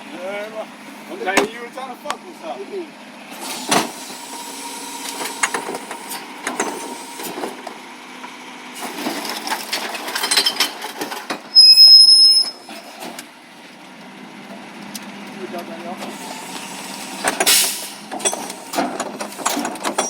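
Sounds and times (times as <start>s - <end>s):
truck rattling and knocking: 5.1s - 13.4s, 16.9s - 20.0s
high-pitched metal squeal: 11.5s - 12.8s.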